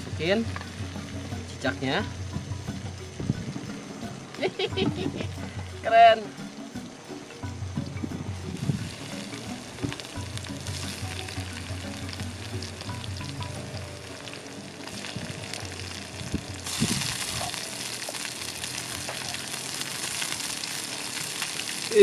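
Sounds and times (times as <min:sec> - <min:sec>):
dough sizzling in hot oil: 0:07.8 - 0:22.0.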